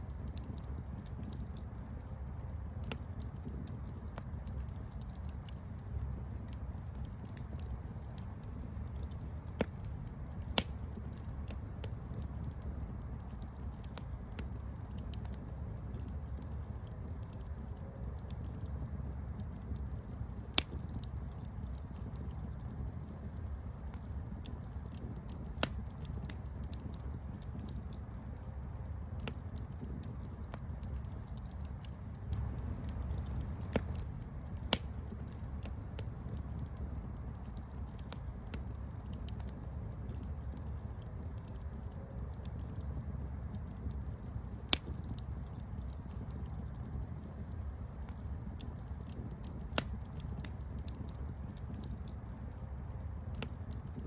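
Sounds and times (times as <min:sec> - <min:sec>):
campfire crackling: 0:00.0 - 0:54.0
fire pops: 0:00.0 - 0:54.0
wood snapping and popping: 0:09.0 - 0:12.6, 0:20.6 - 0:21.2, 0:24.7 - 0:28.0, 0:28.8 - 0:36.8, 0:44.7 - 0:45.9, 0:47.9 - 0:52.1.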